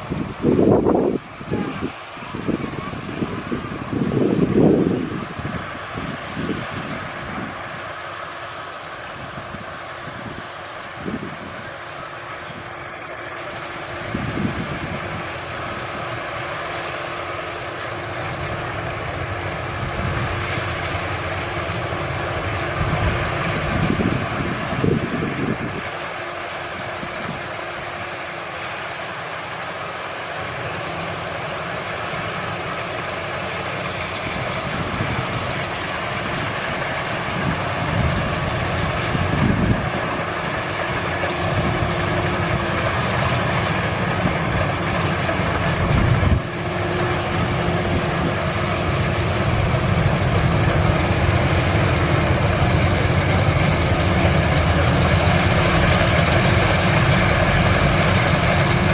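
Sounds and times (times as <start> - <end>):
combine harvester mechanical drone: 0.0 - 58.9.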